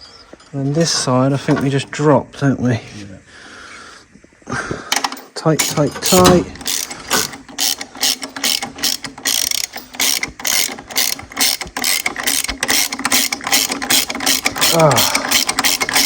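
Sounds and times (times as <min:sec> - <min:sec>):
ratchet spanner clicking: 0:05.0 - 0:16.0.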